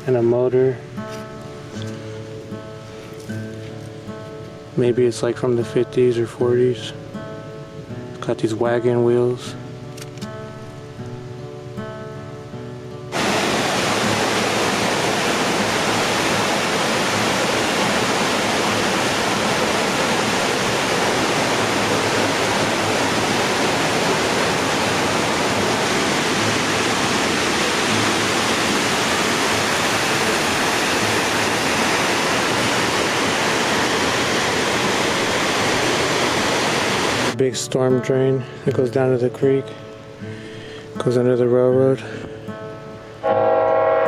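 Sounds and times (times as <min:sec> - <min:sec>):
creek water rushing: 0:13.0 - 0:37.4.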